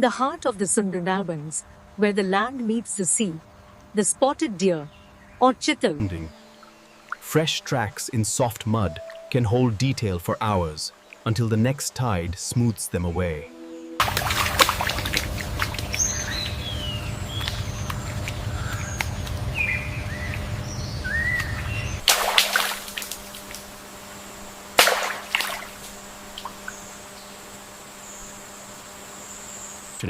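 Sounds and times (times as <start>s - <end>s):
small birds chirping: 3.5s - 14.0s, 14.7s - 22.0s, 25.3s - 30.0s
thin high tone: 6.0s - 15.0s
sharp cracks: 22.0s - 23.7s, 24.7s - 26.6s.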